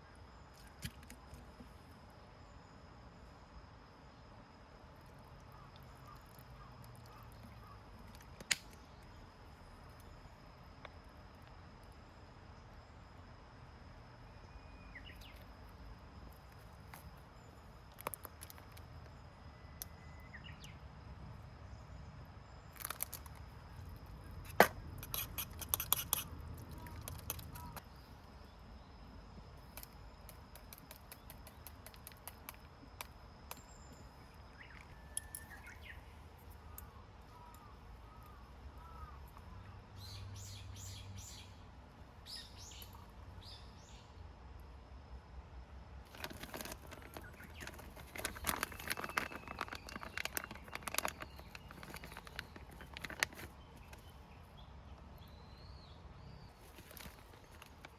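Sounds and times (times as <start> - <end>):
faint bird chirps: 0.0 - 13.3, 14.1 - 44.2, 46.2 - 57.9
high insect trill: 0.0 - 57.9
sharp cracks and clicks: 8.0 - 8.9, 24.5 - 27.9, 29.7 - 33.7, 46.1 - 54.1.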